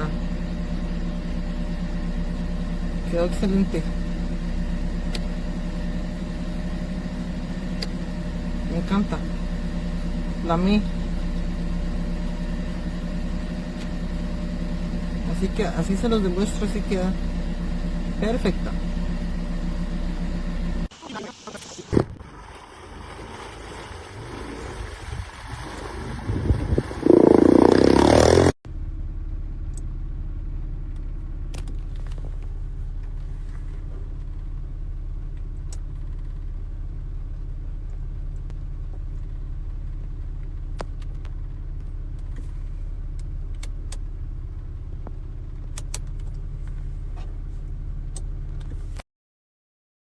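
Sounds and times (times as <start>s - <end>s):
vehicle engine rumbling: 0.0s - 49.0s
wind buffeting microphone: 24.7s - 27.9s.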